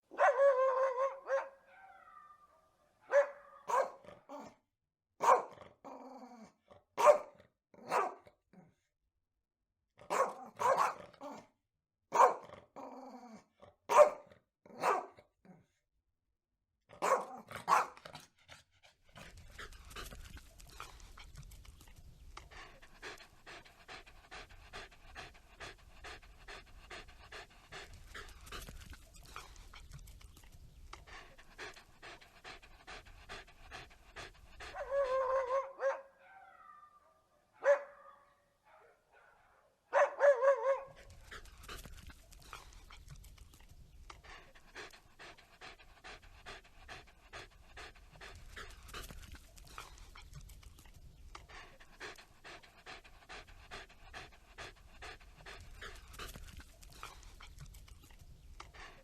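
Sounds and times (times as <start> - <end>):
dog panting: 17.4 - 36.1, 40.3 - 59.0.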